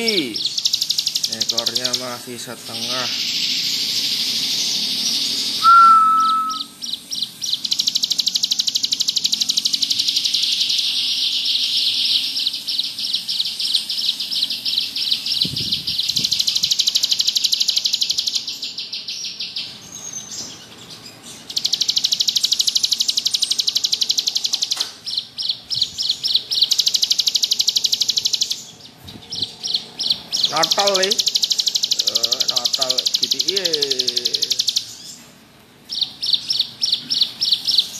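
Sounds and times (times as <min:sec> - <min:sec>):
bird buzzing trills: 0:00.0 - 0:18.6, 0:21.4 - 0:35.2
short clear whistle: 0:05.6 - 0:06.7.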